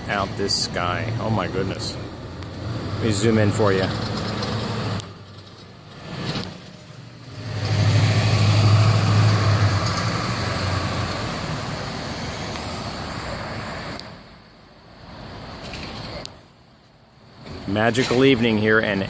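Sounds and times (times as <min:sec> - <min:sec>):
vehicle engine passing: 0:00.0 - 0:13.9
traffic noise: 0:00.0 - 0:19.0.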